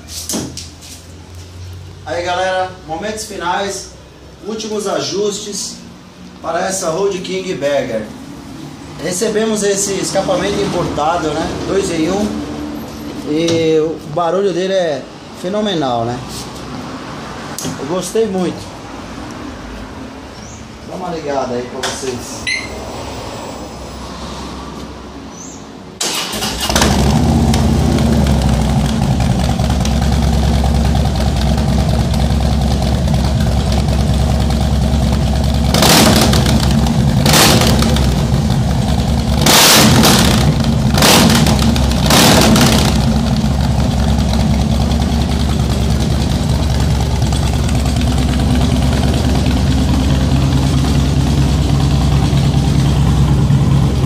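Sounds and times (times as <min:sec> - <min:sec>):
motorcycle engine starting and idling: 0:26.0 - 0:54.0.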